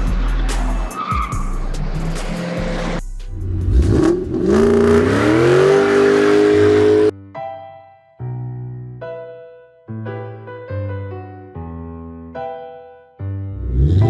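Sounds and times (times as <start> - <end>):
car tyre squealing: 0.2 - 3.0, 3.8 - 7.1
engine revving whine: 1.8 - 7.1.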